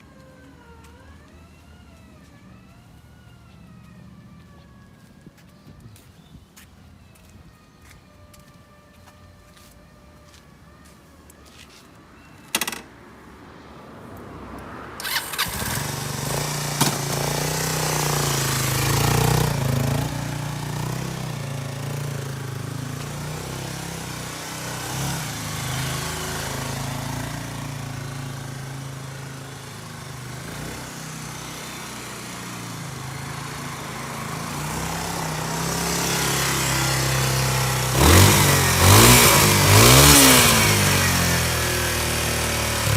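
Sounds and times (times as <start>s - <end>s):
motorcycle engine starting and idling: 0.0s - 6.0s, 12.2s - 13.1s, 15.0s - 42.9s
engine revving: 15.0s - 42.9s.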